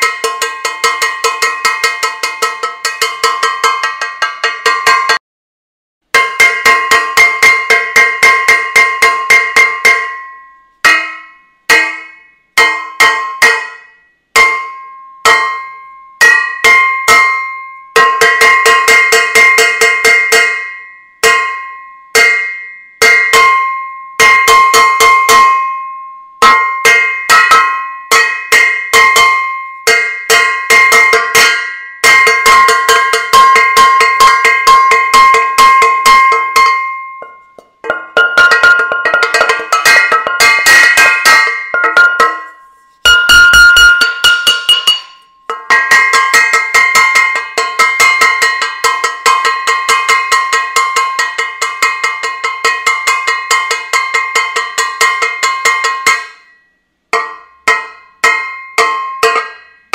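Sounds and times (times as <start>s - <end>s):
metal saucepan struck ringing: 0.0s - 5.2s, 6.1s - 59.9s.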